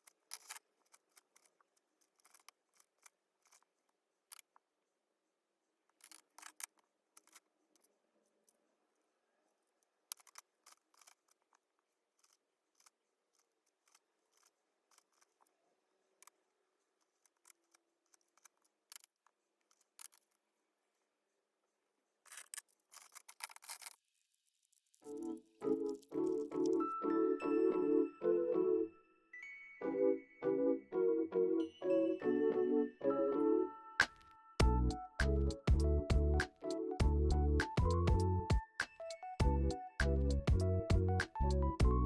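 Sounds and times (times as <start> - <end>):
pencils clicking and tapping: 0.0 - 4.7, 5.9 - 8.6, 9.8 - 15.5, 17.0 - 20.4, 22.3 - 24.0, 25.0 - 26.9.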